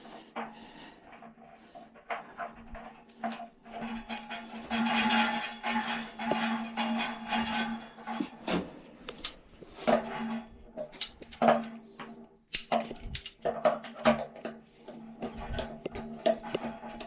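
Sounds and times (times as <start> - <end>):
pipe fittings scraping and rustling: 0.0 - 17.0.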